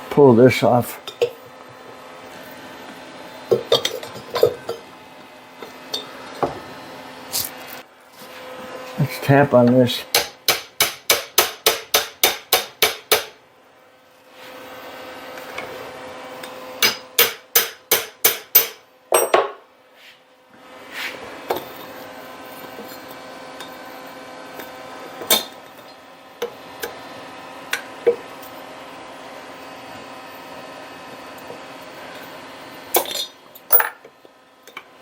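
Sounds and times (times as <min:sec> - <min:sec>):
hammer tapping on metal: 0:10.1 - 0:13.4
knocks and clinks: 0:19.1 - 0:19.6, 0:33.0 - 0:34.0.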